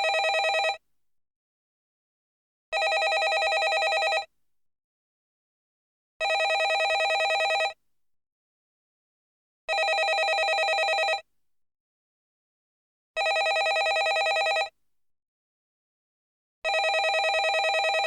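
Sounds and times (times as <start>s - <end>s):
telephone bell ringing: 0.0s - 0.8s, 2.8s - 4.3s, 6.2s - 7.8s, 9.7s - 11.2s, 13.2s - 14.7s, 16.7s - 18.0s.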